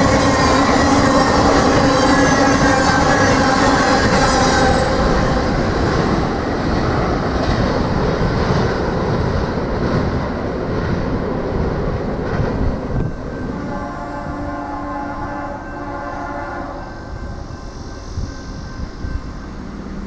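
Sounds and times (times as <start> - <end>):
locomotive horn blast: 0.0 - 5.5, 13.4 - 17.2
train rumbling past: 0.0 - 20.0.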